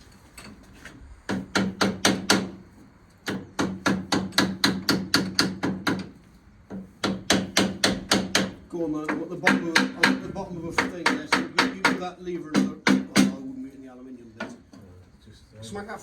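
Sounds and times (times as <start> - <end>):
hammer tapping on metal: 1.3 - 2.6, 3.2 - 6.1, 6.7 - 13.4.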